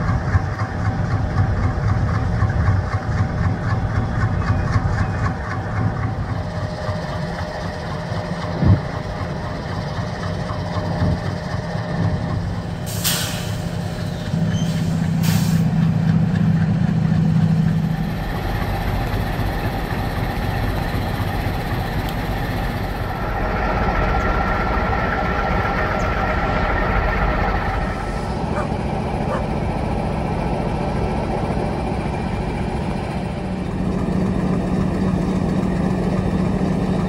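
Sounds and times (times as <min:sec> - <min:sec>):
diesel locomotive idling: 0:00.0 - 0:37.0
air release hisses: 0:12.9 - 0:13.8.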